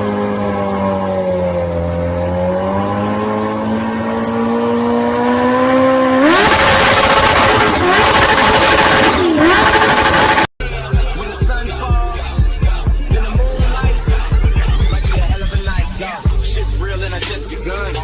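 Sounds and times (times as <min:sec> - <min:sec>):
vehicle engine revving: 0:00.0 - 0:18.0.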